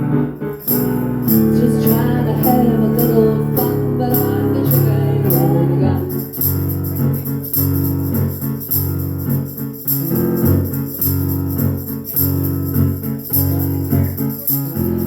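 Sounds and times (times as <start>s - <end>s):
low bass notes: 0.0s - 7.2s
jingling percussion: 0.3s - 15.0s.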